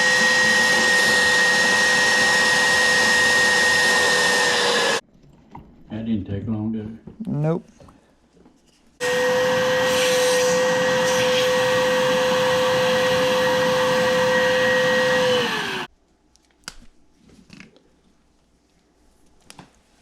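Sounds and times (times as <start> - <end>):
shop vac running with a whine: 0.0 - 5.0, 9.0 - 15.9
shop vac sucking water: 0.0 - 5.0, 9.0 - 15.9.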